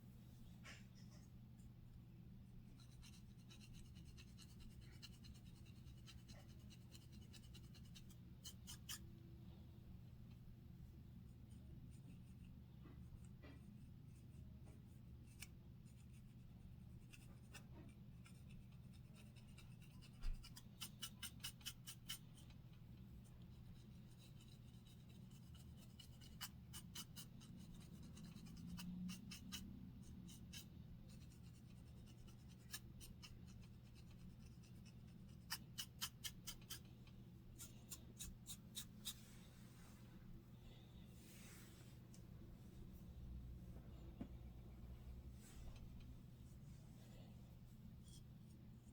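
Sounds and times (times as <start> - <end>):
scratching on scalp: 2.7 - 9.0, 15.2 - 22.5, 23.2 - 36.9, 37.5 - 40.1
steady low hum: 36.8 - 48.9.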